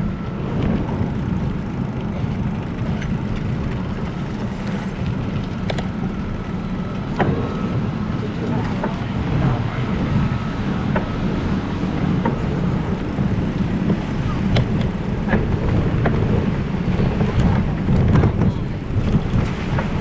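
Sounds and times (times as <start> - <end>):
wind buffeting microphone: 0.4 - 7.8
bicycle clicks and knocks: 1.6 - 7.3.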